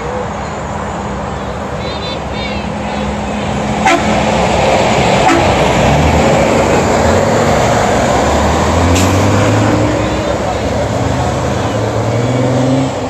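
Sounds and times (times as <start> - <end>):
street noise: 0.0 - 13.0
vehicle driving past: 3.0 - 13.0.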